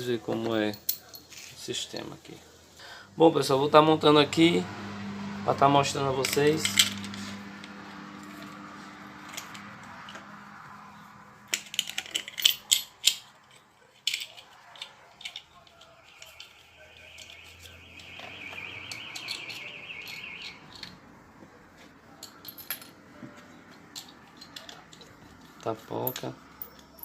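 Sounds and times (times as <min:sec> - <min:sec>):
metal hardware clinking: 0:00.3 - 0:01.6, 0:06.1 - 0:08.5, 0:11.4 - 0:20.9, 0:22.2 - 0:23.0, 0:23.8 - 0:27.0
low hum: 0:02.9 - 0:12.5
high-pitched whine: 0:03.2 - 0:11.4.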